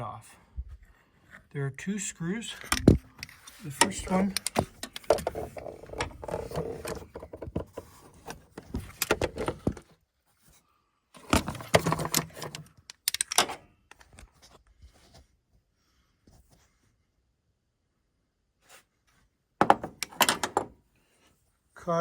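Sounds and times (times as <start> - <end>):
hand tools clicking on metal: 12.5 - 13.5.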